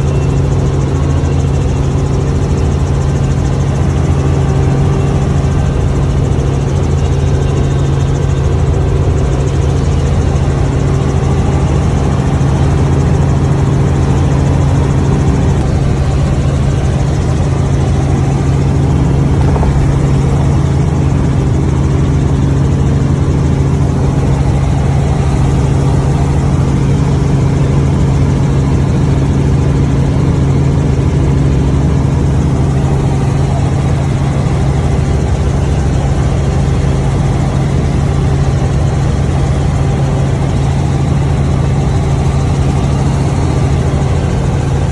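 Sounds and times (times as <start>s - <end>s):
vehicle engine humming: 0.0s - 29.1s.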